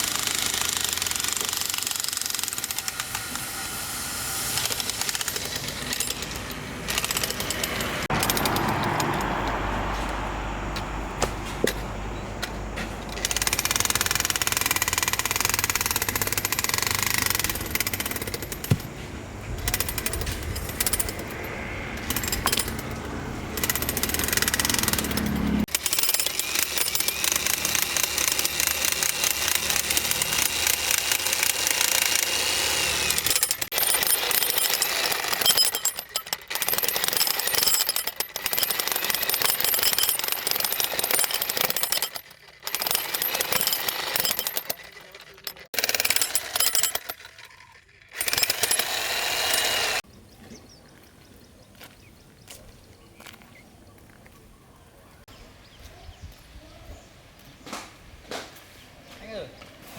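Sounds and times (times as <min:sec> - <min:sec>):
jackhammer hammering: 0:00.0 - 0:10.1, 0:12.8 - 0:50.1.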